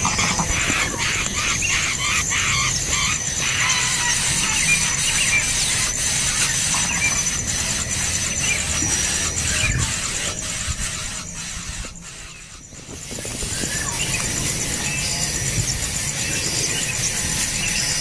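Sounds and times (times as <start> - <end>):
nestling birds begging: 0.0 - 18.0.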